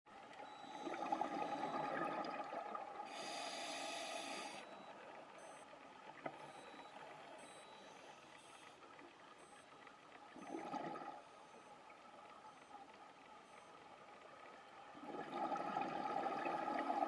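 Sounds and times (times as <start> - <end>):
exhaled bubbles gurgling underwater: 0.6 - 4.9, 10.3 - 11.3, 14.9 - 17.0
inhalation hissing through regulator: 3.1 - 4.7.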